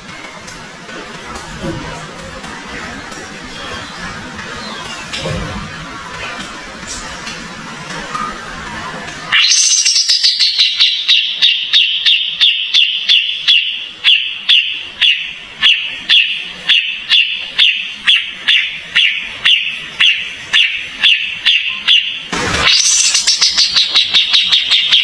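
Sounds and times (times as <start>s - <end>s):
songbird sharp chirps: 9.4s - 25.0s.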